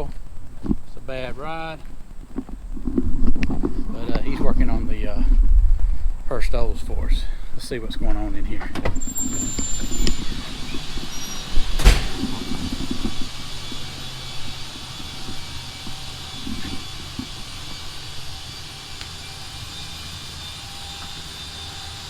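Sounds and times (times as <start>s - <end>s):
steady low hum: 10.2s - 22.0s
sharp loud knock: 11.8s - 12.5s
handling and clattering: 11.8s - 12.8s.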